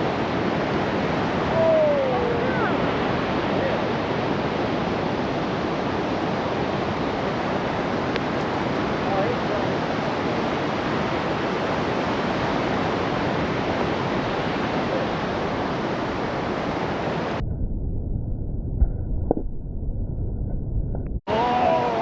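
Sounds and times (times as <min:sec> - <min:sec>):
sea surf: 0:00.0 - 0:17.4, 0:21.3 - 0:22.0
wind: 0:00.0 - 0:22.0.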